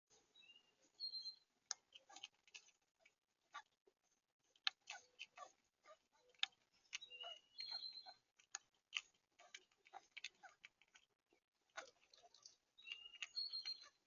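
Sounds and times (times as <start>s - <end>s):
high bird chirp: 0.3s - 2.2s, 6.1s - 8.2s, 12.1s - 14.0s
birds tapping at a feeder: 0.4s - 3.8s, 4.4s - 14.0s.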